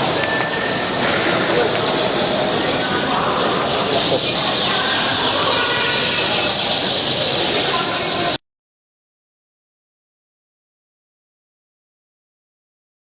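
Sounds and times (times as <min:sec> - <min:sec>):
songbirds chirping and whistling: 0:00.0 - 0:08.4.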